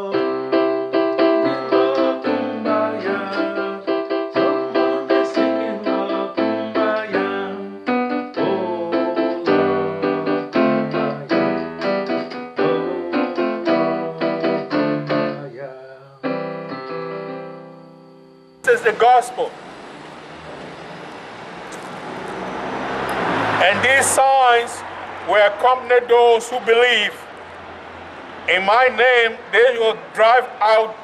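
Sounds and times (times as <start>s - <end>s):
electronic keyboard piano chords: 0.0s - 19.6s.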